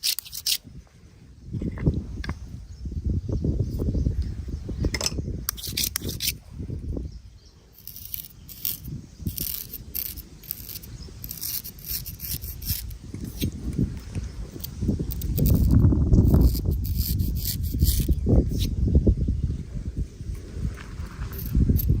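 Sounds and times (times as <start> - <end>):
razor scraping stubble: 0.0 - 0.6, 5.5 - 6.5, 7.7 - 18.8, 20.4 - 22.0.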